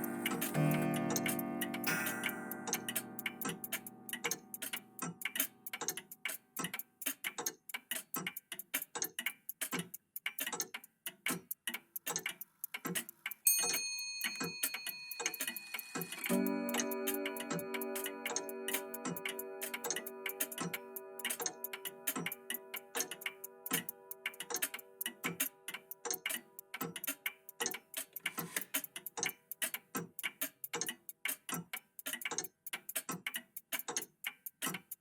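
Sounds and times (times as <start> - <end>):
chime ringing: 0.0 - 4.1, 13.5 - 23.5
clocks ticking: 0.0 - 35.0
high ringing tone: 13.5 - 21.2.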